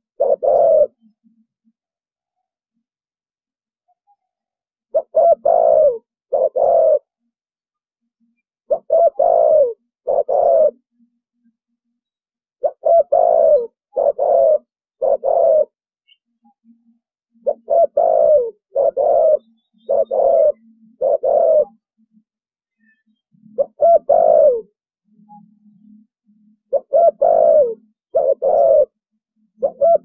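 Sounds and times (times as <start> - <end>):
dove cooing: 0.0 - 1.2, 4.9 - 7.2, 8.7 - 11.0, 12.6 - 15.8, 17.3 - 21.9, 23.4 - 24.8, 26.7 - 29.0, 29.6 - 30.0.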